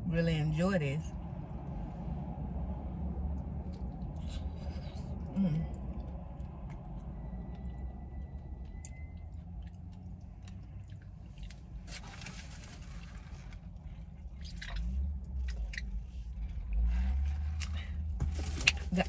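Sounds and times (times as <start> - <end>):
low steady hum: 0.0 - 19.0
person chewing food: 3.3 - 12.1.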